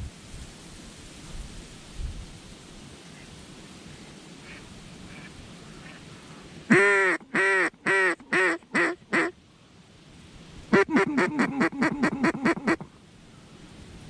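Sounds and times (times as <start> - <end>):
duck call quacks: 6.7 - 9.4, 10.7 - 12.9.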